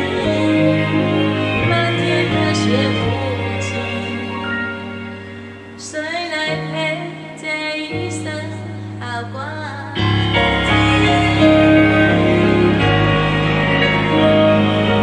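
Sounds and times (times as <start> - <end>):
woman singing a ballad: 0.0 - 4.4, 5.8 - 13.0
piano-led accompaniment: 0.0 - 15.0.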